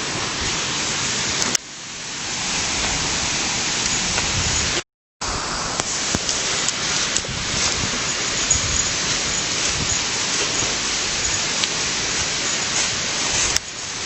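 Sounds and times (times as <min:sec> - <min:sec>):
rushing water: 0:00.0 - 0:14.0.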